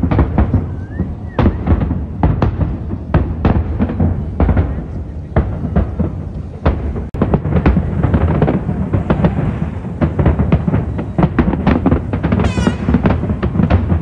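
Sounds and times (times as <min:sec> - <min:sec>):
deep continuous rumble: 0:00.0 - 0:14.0
fireworks exploding: 0:00.0 - 0:14.0
falling whistle: 0:00.6 - 0:01.7.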